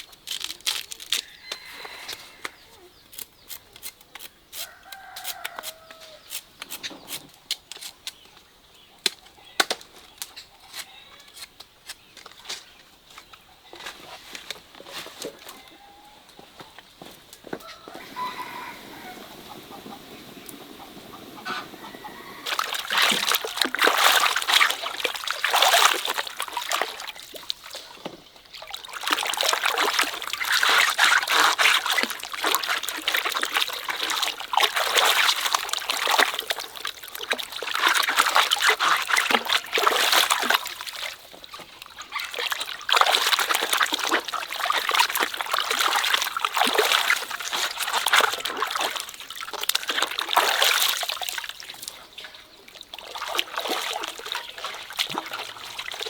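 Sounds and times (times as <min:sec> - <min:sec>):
water splashing and trickling: 0:00.0 - 0:02.9, 0:17.0 - 0:56.0.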